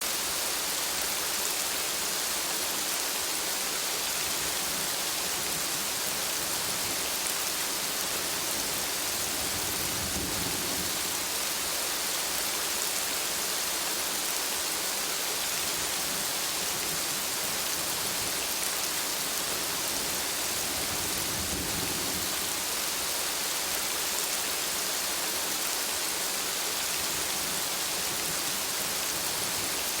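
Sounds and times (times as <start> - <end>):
heavy rain on trees: 0.0 - 30.0.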